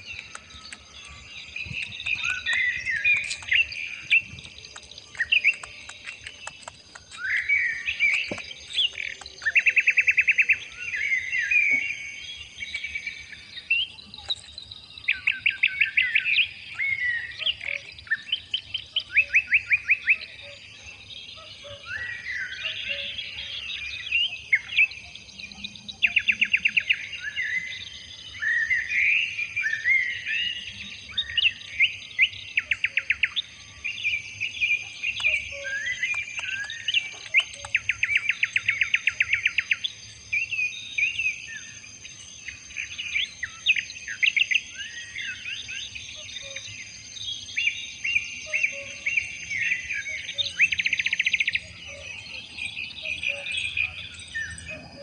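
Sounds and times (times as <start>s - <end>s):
birds singing: 0.0s - 55.0s.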